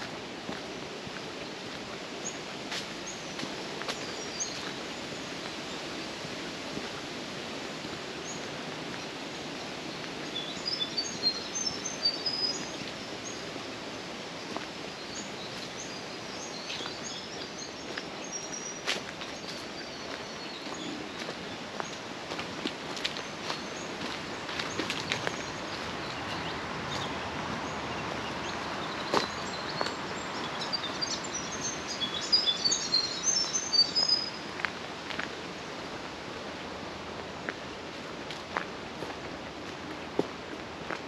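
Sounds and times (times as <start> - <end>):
background noise: 0.0 - 41.0
small birds chirping: 1.1 - 6.2, 7.8 - 13.6, 14.4 - 22.1, 23.0 - 34.4.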